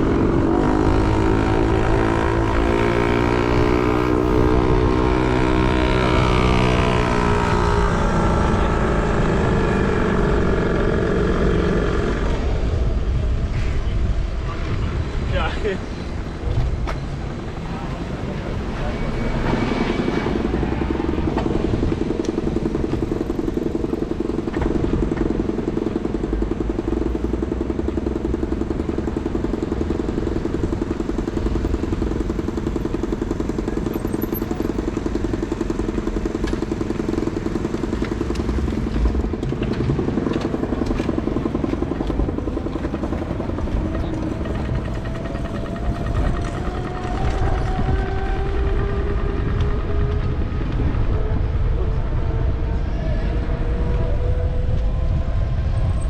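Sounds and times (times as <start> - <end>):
vehicle engine speeding up: 0.0 - 13.6, 15.6 - 56.0
low rumble: 0.0 - 56.0
motor traffic drone: 0.0 - 56.0.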